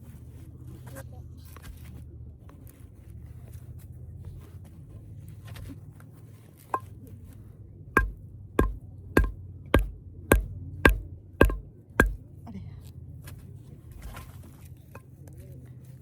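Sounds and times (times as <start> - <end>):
dull thumps with metallic ring: 8.0 - 12.2.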